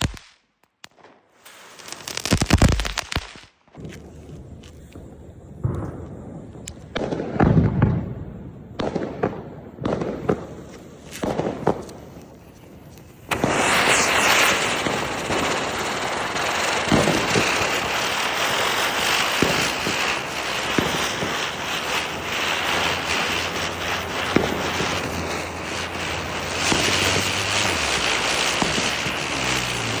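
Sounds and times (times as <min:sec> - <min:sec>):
firecracker bangs: 0:03.8 - 0:30.0
ground spinners hissing and crackling: 0:08.7 - 0:30.0.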